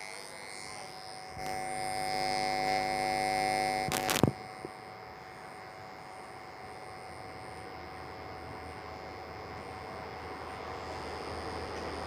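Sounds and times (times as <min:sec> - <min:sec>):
electrical buzz: 0:00.0 - 0:12.0
sharp clicks: 0:03.8 - 0:04.4.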